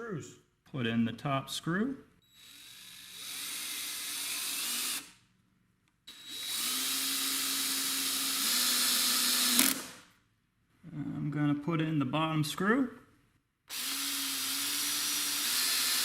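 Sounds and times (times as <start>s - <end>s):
cordless drill driving a screw: 2.2s - 5.2s, 6.1s - 10.0s, 13.7s - 16.0s.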